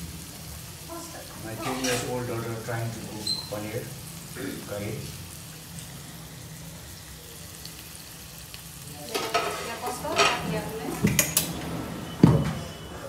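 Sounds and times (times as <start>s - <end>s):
food sizzling: 0.0s - 13.0s
spatula scraping a wok: 1.6s - 2.3s, 9.0s - 10.7s.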